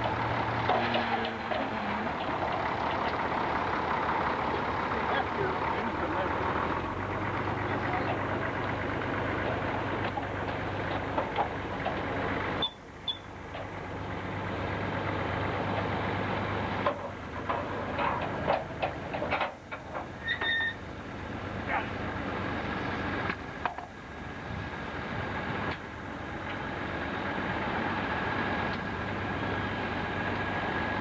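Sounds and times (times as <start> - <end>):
sawmill machinery humming: 0.0 - 12.6.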